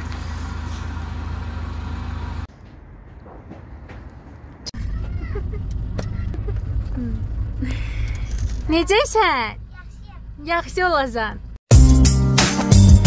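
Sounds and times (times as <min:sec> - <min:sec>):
vehicle engine idling: 0:00.0 - 0:03.1, 0:04.4 - 0:11.6.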